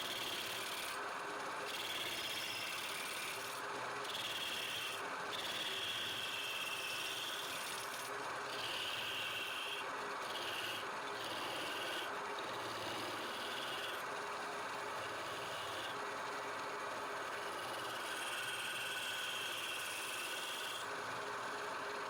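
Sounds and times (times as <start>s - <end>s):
turning tool scraping wood: 1.7s - 14.0s, 17.6s - 20.8s
lathe humming: 8.5s - 14.0s, 15.0s - 15.9s, 17.5s - 20.8s.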